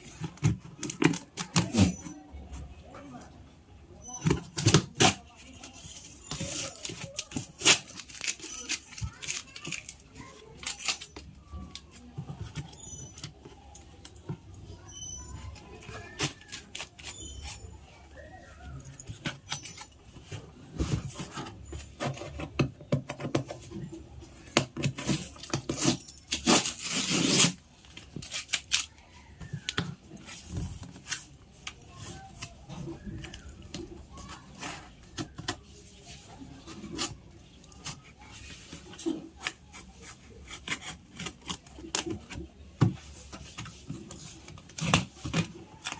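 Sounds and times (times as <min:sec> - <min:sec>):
cardboard and plastic packaging rustling: 0:00.0 - 0:02.8, 0:04.1 - 0:45.9
rasping tearing noise: 0:25.1 - 0:27.6.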